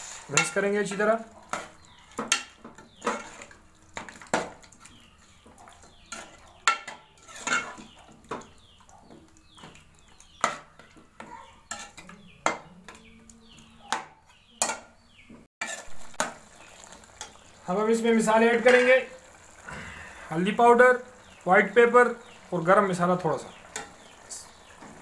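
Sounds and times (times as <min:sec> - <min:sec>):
spoon scraping a pan: 0:00.0 - 0:15.0, 0:15.6 - 0:16.4, 0:23.7 - 0:25.0.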